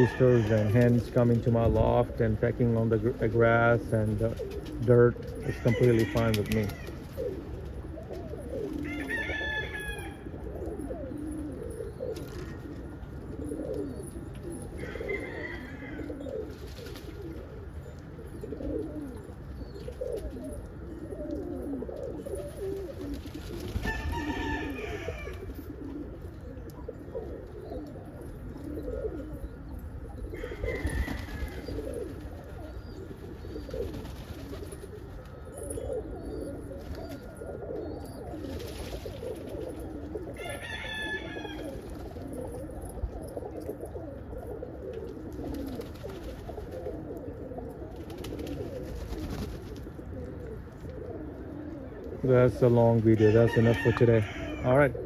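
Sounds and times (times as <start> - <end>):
rooster crowing: 0.0 - 0.8, 8.8 - 10.2, 14.8 - 16.2, 23.9 - 25.4, 30.3 - 31.7, 40.4 - 41.8, 53.1 - 54.8
pigeons cooing: 0.0 - 55.0.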